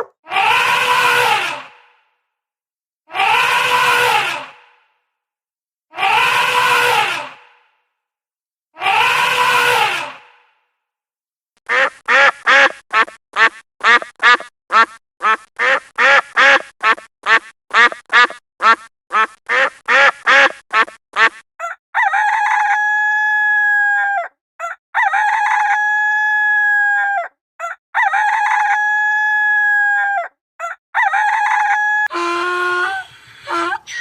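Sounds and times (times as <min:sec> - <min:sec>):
duck quacking: 0:11.6 - 0:21.4, 0:32.1 - 0:34.0
rooster crowing: 0:31.0 - 0:34.0.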